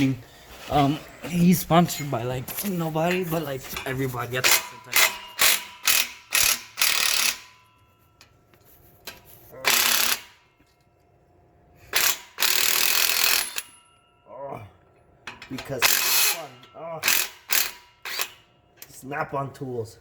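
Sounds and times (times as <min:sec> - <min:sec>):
ratchet wrench clicking: 0:04.5 - 0:07.6, 0:09.7 - 0:10.4, 0:11.9 - 0:13.8, 0:15.3 - 0:18.9.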